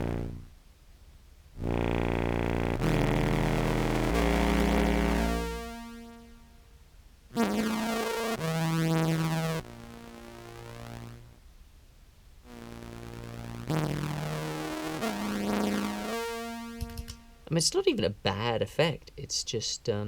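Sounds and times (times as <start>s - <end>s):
low synth-like clarinet tones: 0.0s - 0.5s, 1.6s - 5.8s.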